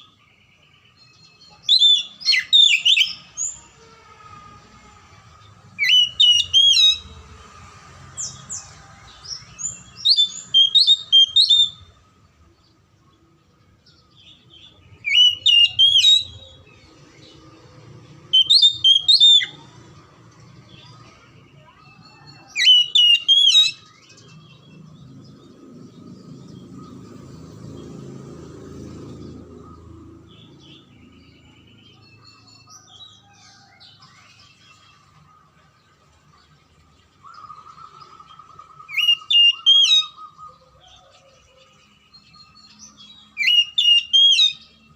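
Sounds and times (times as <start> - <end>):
bird whistled song: 0.0 - 3.6, 5.7 - 7.2, 9.3 - 12.1, 13.9 - 17.5, 18.2 - 19.6, 21.9 - 24.9, 37.2 - 44.9.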